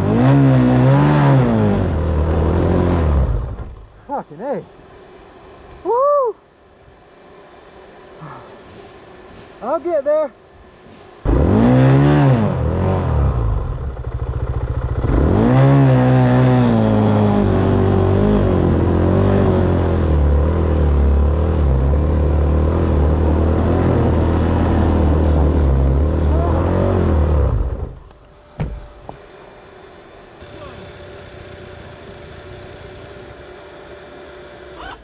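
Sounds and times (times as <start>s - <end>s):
dirt bike engine revving: 0.0s - 3.8s, 10.8s - 28.1s, 30.4s - 35.0s.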